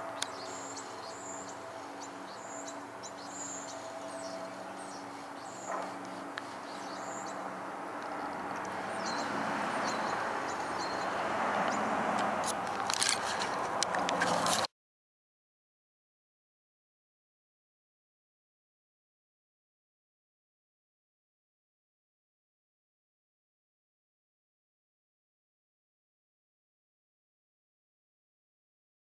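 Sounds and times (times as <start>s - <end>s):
steady low hum: 0.0s - 11.3s
small birds chirping: 0.0s - 12.0s.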